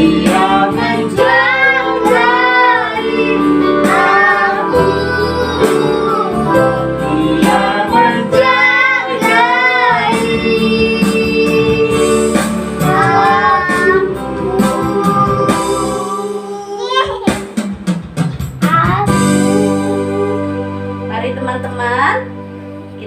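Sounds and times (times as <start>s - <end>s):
children and woman singing: 0.0s - 16.9s.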